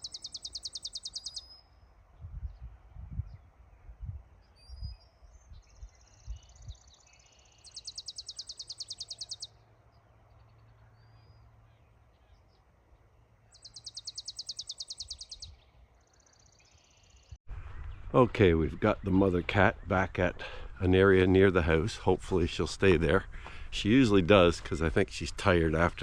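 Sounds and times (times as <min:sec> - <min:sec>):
bird rapid high trill: 0:00.0 - 0:01.6, 0:07.5 - 0:09.5, 0:13.6 - 0:15.6
faint bird chirps: 0:00.0 - 0:12.6, 0:13.5 - 0:17.4.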